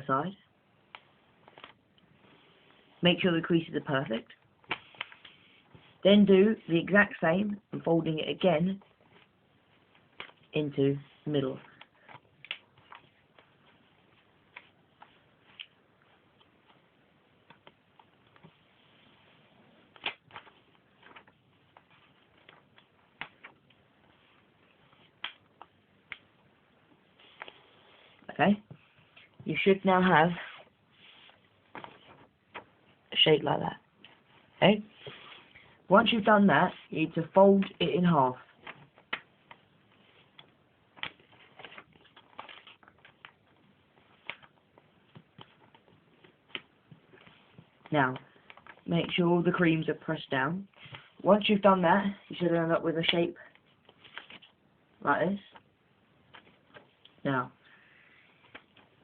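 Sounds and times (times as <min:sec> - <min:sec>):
paper crinkling as folded: 0:11.2 - 0:26.2, 0:38.4 - 0:48.9, 0:53.5 - 0:54.6.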